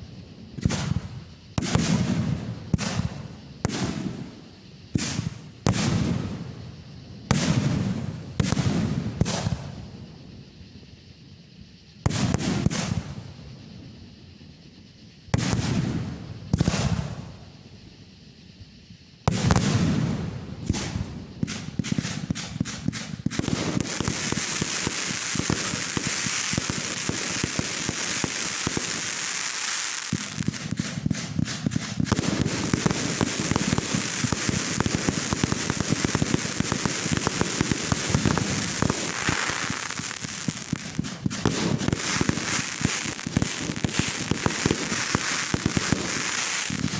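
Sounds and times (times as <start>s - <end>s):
fireworks bangs: 0.0s - 6.6s, 12.0s - 13.3s, 15.3s - 17.4s, 19.3s - 46.9s
rapid crackling of fireworks: 0.0s - 46.9s.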